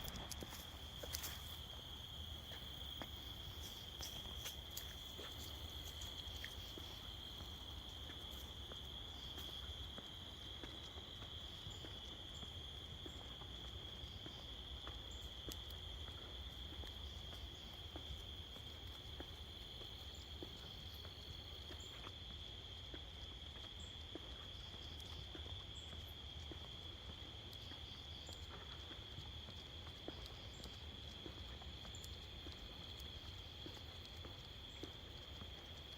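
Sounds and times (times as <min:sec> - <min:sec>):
crickets trilling: 0:00.0 - 0:35.9
faint ticks: 0:02.4 - 0:35.9.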